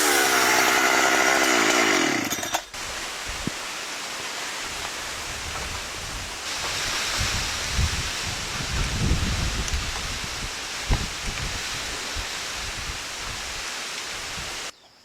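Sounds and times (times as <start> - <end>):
chainsaw engine running: 0.0 - 2.7
steady hiss: 2.7 - 14.7.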